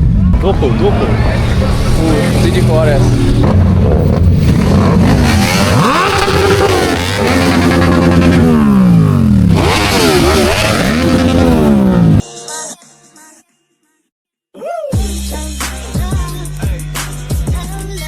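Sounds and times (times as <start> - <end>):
car engine idling and revving: 0.0 - 12.2.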